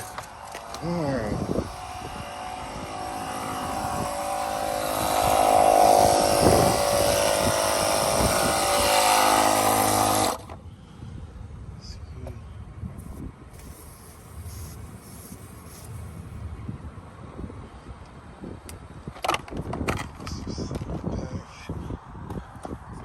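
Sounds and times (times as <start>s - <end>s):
machine motor whining and hissing: 0.0s - 10.6s.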